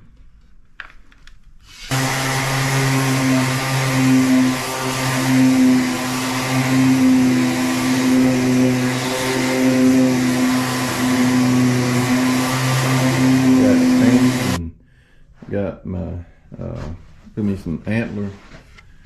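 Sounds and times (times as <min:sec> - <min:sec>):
electric power tool motor humming: 0:01.7 - 0:14.6.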